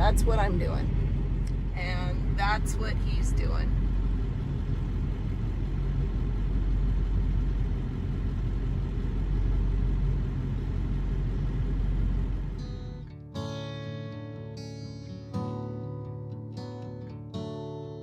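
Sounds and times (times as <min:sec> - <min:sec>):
pickup truck engine rumble: 0:00.0 - 0:13.0
road noise: 0:00.0 - 0:13.0.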